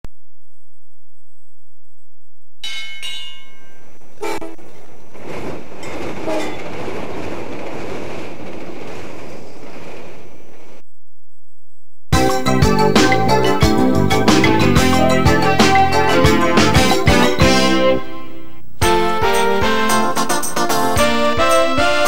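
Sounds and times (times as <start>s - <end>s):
passing train rumble: 3.4s - 10.8s.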